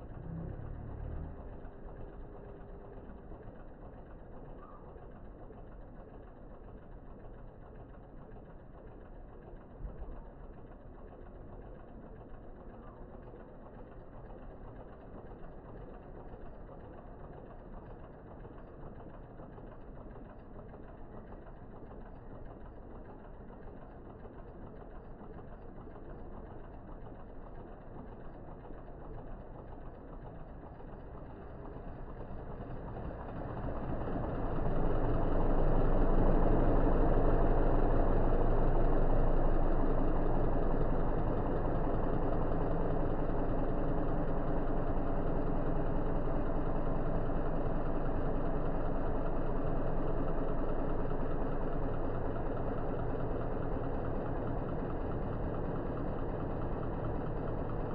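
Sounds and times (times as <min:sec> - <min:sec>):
car engine running: 0:00.0 - 0:57.9.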